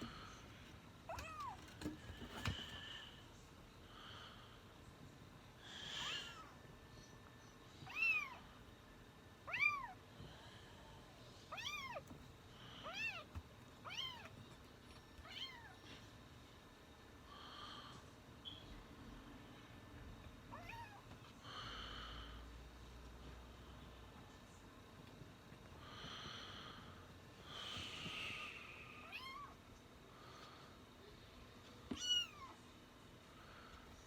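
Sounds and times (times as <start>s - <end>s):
kitten meowing: 32.0s - 32.5s.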